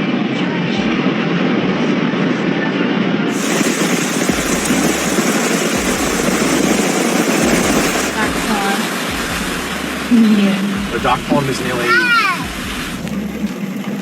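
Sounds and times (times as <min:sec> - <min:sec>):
rain and rushing floodwater: 0:03.3 - 0:14.0.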